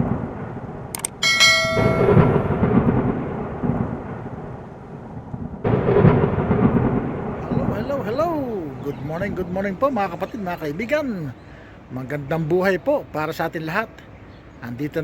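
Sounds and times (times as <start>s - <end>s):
thunder rumbling: 0.0s - 11.3s
rain: 0.0s - 12.7s
bright ringing chime: 1.2s - 2.6s.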